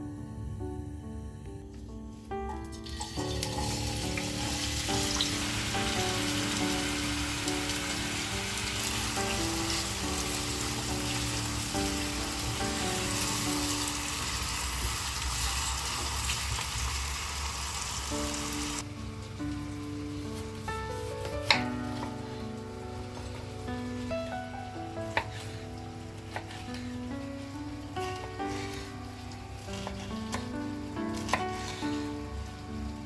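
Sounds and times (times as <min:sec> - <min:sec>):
soft background music: 0:00.0 - 0:33.0
food sizzling in hot oil: 0:02.7 - 0:18.8.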